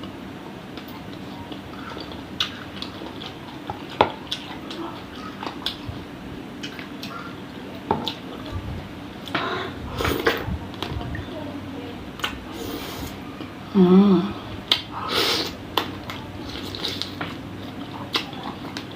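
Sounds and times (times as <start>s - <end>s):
wet chewing and mouth smacks: 0.8s - 5.9s, 15.8s - 18.9s.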